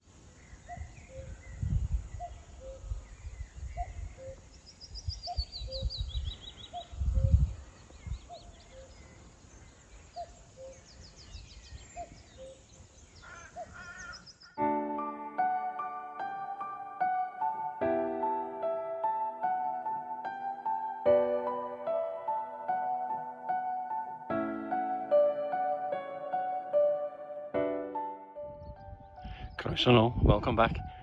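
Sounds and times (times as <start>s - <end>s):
songbirds trilling: 0.4s - 26.8s
wind buffeting microphone: 0.8s - 9.2s, 28.4s - 31.0s.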